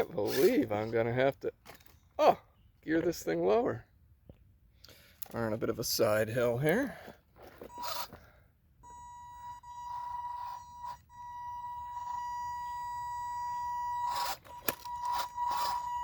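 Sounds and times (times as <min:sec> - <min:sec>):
electric motor whining: 0:07.7 - 0:08.2, 0:08.8 - 0:16.0.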